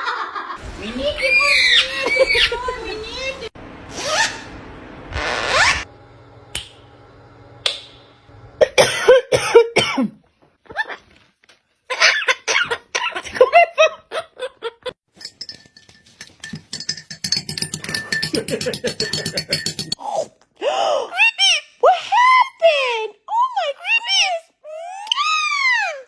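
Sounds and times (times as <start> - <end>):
parrot chirping and squawking: 1.2 - 2.6, 3.9 - 4.5.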